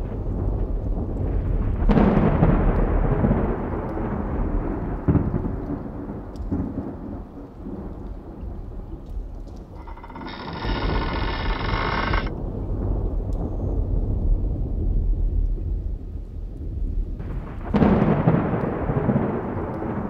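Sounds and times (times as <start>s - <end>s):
thunder rolling: 9.7s - 15.9s, 16.7s - 20.0s
sharp thunder crack: 17.3s - 20.0s.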